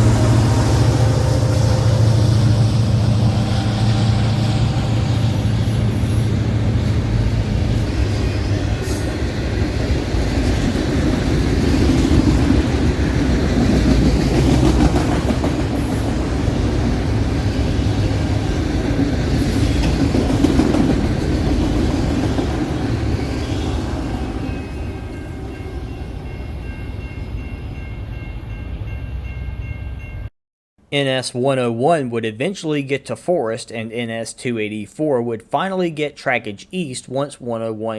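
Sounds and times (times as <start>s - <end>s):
diesel locomotive drone: 0.0s - 30.3s
train wheels rumbling on rails: 0.0s - 30.3s.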